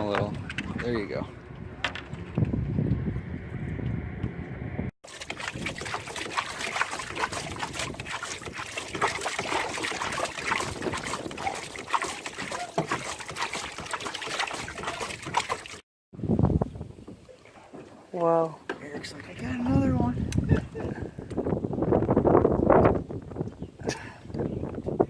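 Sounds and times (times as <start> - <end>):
water trickling and splashing: 5.0 - 15.8, 16.6 - 21.3.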